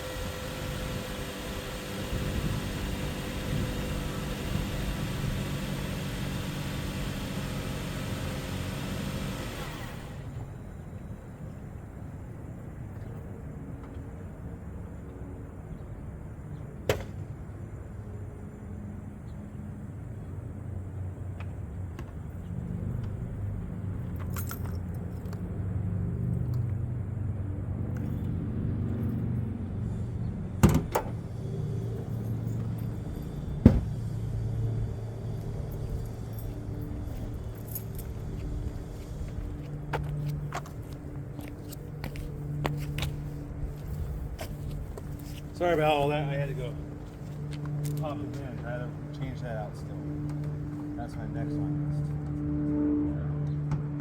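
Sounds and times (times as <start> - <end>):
car engine running: 0.0 - 10.5.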